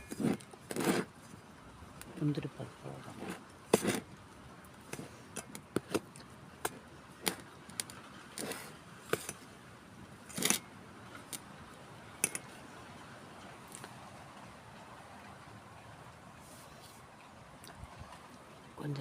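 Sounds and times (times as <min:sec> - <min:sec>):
utensils scraping: 0:00.0 - 0:01.1, 0:03.1 - 0:04.0, 0:07.2 - 0:09.4, 0:10.3 - 0:11.4, 0:12.2 - 0:12.6
utensils clinking on steel vessel: 0:12.2 - 0:12.6.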